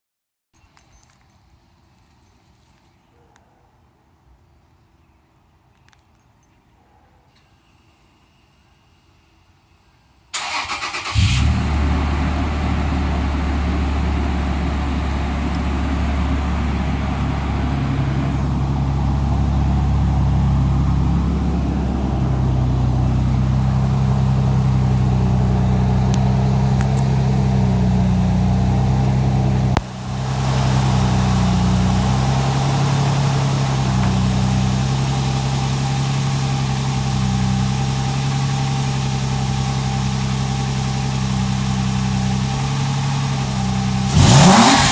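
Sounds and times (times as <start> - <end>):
car engine idling: 10.4 - 44.9.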